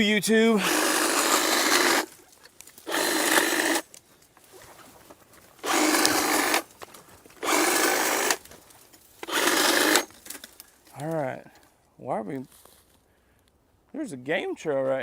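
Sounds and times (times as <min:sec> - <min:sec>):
power saw cutting brush: 0:00.0 - 0:02.2, 0:02.8 - 0:03.9, 0:05.6 - 0:06.7, 0:07.4 - 0:08.5, 0:09.2 - 0:10.4.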